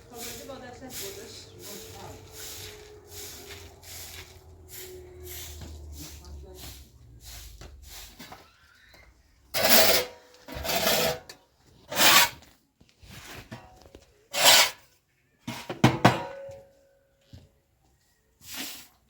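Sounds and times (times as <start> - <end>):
rough rasping scraping strokes: 9.6 - 12.5, 14.3 - 14.8.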